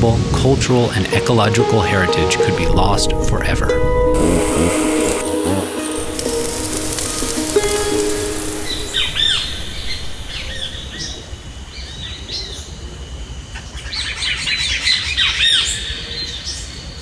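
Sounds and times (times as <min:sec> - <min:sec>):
steady high whine: 0:01.4 - 0:11.8
wild birds chirping: 0:03.8 - 0:12.7.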